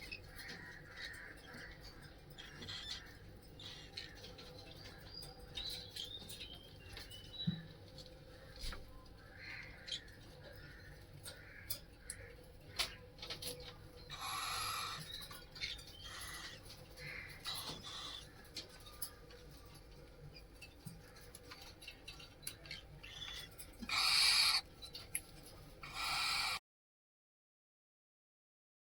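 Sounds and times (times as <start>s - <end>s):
cockatiels hissing calls: 14.1s - 15.1s, 16.0s - 18.4s, 23.1s - 24.7s, 25.8s - 26.6s.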